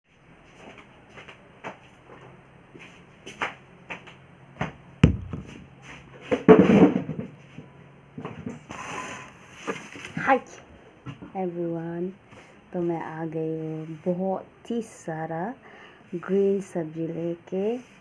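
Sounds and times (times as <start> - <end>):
heavy thump: 5.0 - 5.6.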